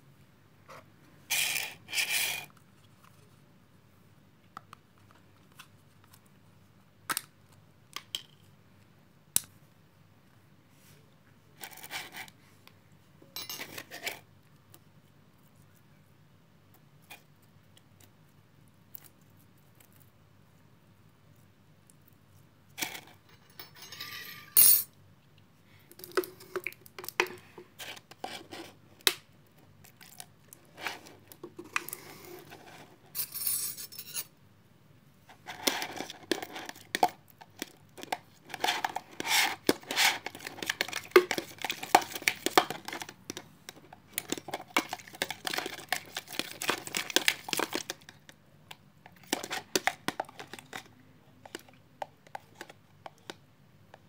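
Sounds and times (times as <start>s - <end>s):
utensil clinking in a bowl: 13.4s - 13.9s, 23.2s - 24.9s.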